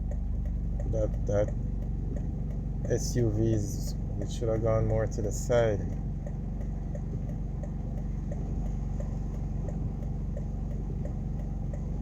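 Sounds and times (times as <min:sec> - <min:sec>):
car engine idling: 0:00.0 - 0:12.0
hazard-light flasher ticking: 0:00.0 - 0:12.0.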